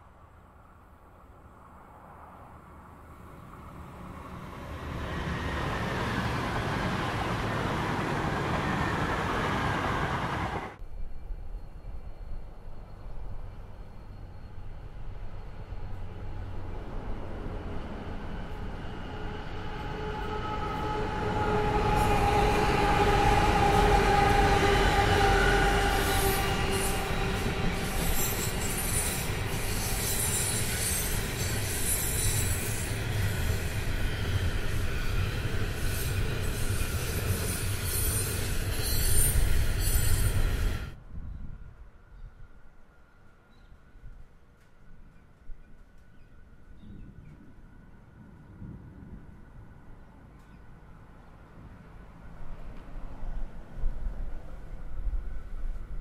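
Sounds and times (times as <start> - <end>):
freight train rumbling past: 0.0 - 42.3
passenger train rushing past: 0.1 - 41.1
train wheels squealing: 5.0 - 16.8, 17.7 - 41.5
shrill squeals and scrapes: 20.2 - 32.9, 35.8 - 40.6.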